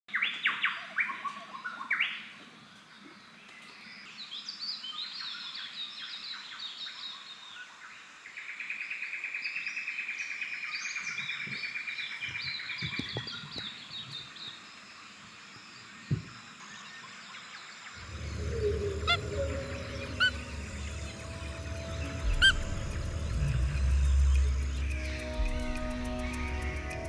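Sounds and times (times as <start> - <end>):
bird chirps: 16.0 - 27.0
fast even bird trill: 18.0 - 26.6
birds calling: 18.0 - 27.0
low thuds: 20.5 - 26.4.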